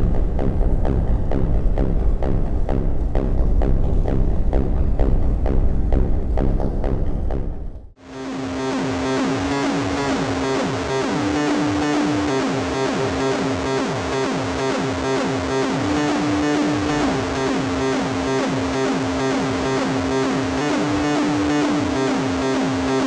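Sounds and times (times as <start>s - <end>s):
synthesizer drone: 0.0s - 23.0s
pulsing higher synth tone: 8.0s - 23.0s.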